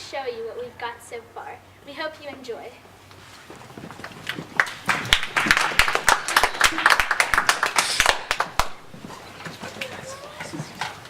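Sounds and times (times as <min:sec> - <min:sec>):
people clapping: 0:04.0 - 0:11.0.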